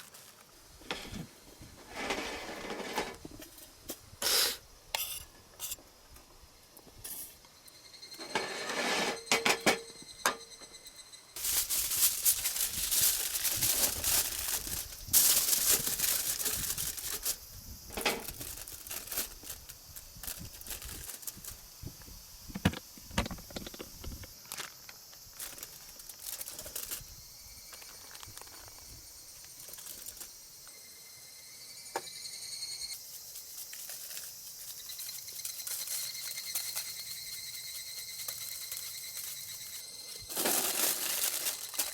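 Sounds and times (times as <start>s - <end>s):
crinkling rustling handling noise: 0.0s - 1.3s, 11.4s - 21.6s, 24.4s - 27.1s, 27.7s - 30.3s, 33.0s - 41.9s.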